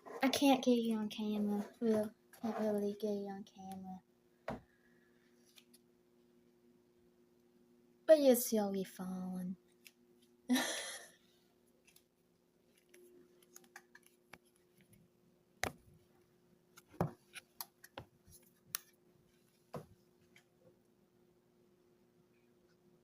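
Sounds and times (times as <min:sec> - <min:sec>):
faint clicks and taps: 0:12.7 - 0:15.8, 0:16.8 - 0:19.0.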